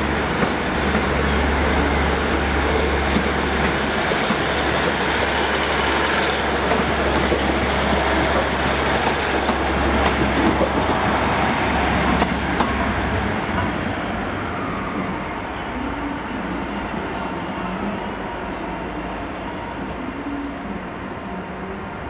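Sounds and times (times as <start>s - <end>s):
train rumbling over track: 0.0s - 22.0s.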